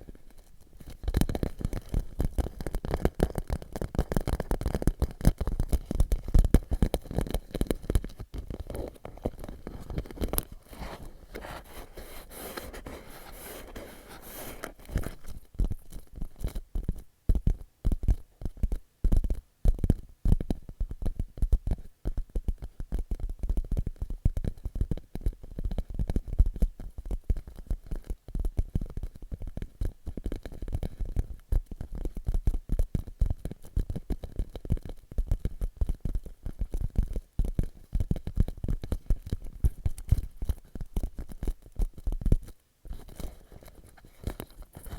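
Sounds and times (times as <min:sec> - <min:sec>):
scratching rustle on plastic: 0:00.0 - 0:17.0, 0:35.8 - 0:44.9
fingers tapping plastic pouch: 0:00.0 - 0:44.9.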